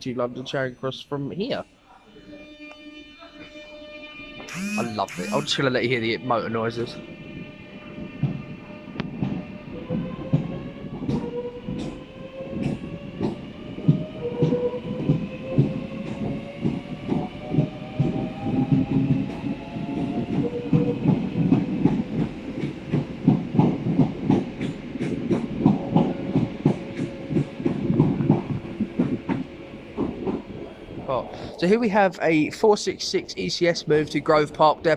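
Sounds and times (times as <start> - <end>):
electric train motors whining: 4.5 - 5.7.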